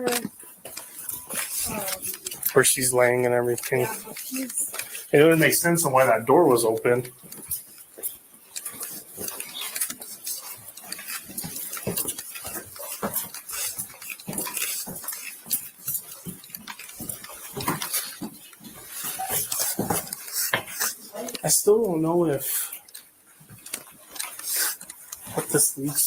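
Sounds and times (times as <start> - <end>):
gear clinking and knocking: 6.6 - 21.5.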